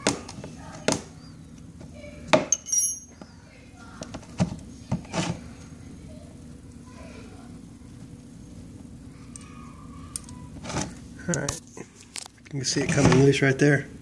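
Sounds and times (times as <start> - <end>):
metal wrench clinking on bolt: 2.5 - 3.1.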